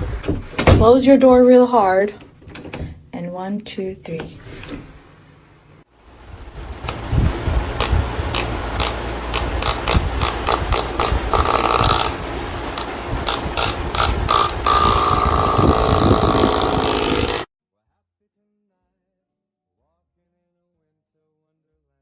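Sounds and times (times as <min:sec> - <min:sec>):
door rattling and knocking: 0:00.0 - 0:03.0.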